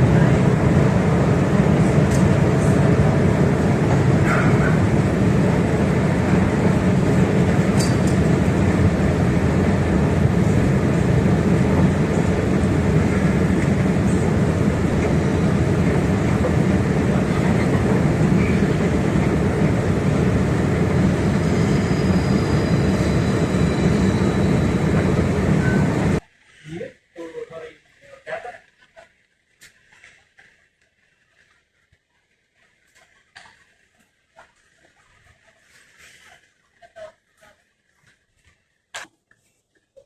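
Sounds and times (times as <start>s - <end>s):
train wheels rumbling on rails: 0.0s - 26.2s
faint high whine: 0.0s - 26.3s.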